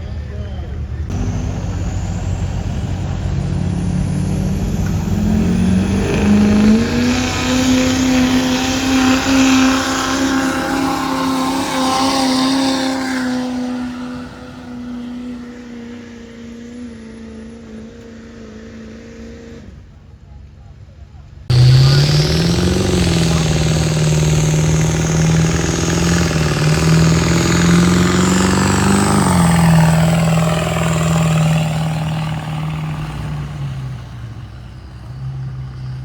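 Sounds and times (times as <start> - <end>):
diesel truck engine under load: 0.0 - 20.2, 21.4 - 36.0
loud rushing hiss: 21.5 - 33.0.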